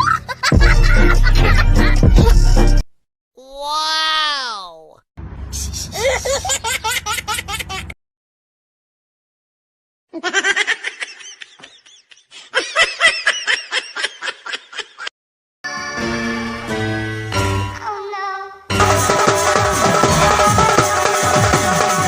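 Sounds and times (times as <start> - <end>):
person laughing: 0.0 - 2.6, 5.8 - 8.0, 10.1 - 15.1.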